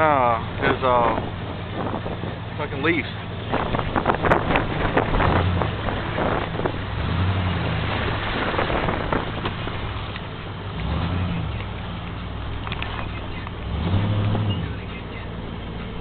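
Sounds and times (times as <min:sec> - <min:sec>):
vehicle engine at low revs: 0:00.0 - 0:16.0
water rushing: 0:00.0 - 0:16.0
wind rushing: 0:00.4 - 0:10.0.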